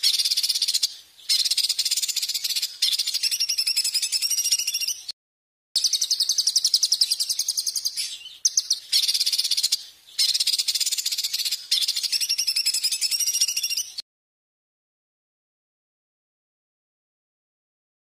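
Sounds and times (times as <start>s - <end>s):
songbird singing rapid notes: 0.0s - 5.2s, 5.8s - 14.0s.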